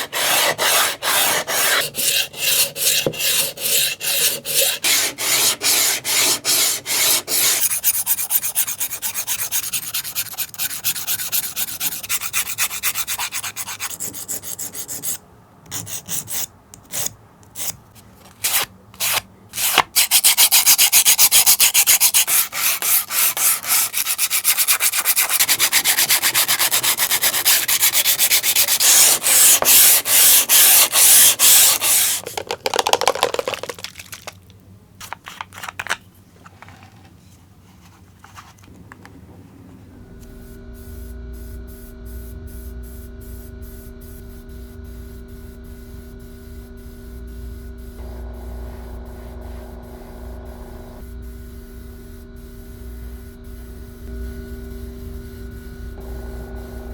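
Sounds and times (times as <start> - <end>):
sandpaper rasping on plastic: 0.0 - 33.8
motor hum with steady tones: 38.8 - 56.9.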